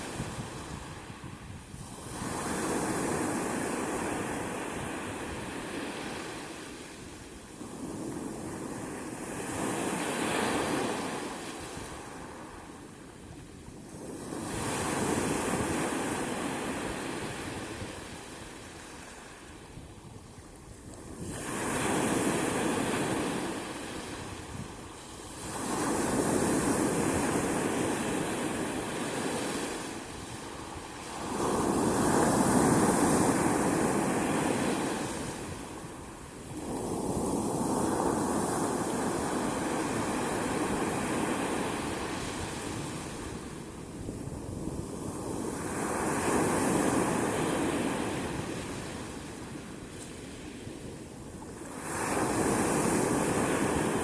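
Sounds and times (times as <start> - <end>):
waves breaking: 20.5 - 50.6.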